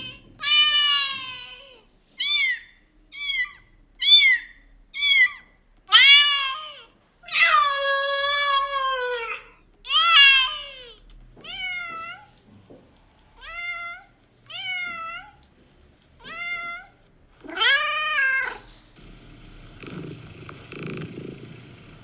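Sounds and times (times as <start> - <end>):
cat meowing: 0.0 - 12.3, 13.4 - 15.4, 16.2 - 18.7.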